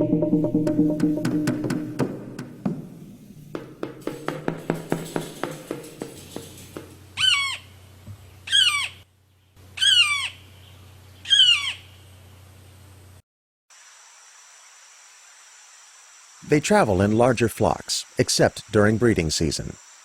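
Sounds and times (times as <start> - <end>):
evenly spaced taps: 0.2 - 7.0
bird squawking: 7.2 - 7.7, 8.4 - 9.0, 9.8 - 10.5, 11.2 - 12.0.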